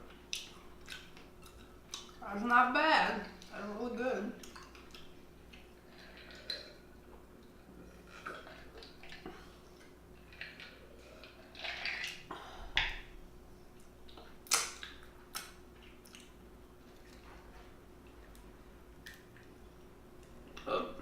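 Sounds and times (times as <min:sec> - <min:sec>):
wet chewing: 0:00.1 - 0:02.2, 0:13.8 - 0:17.3.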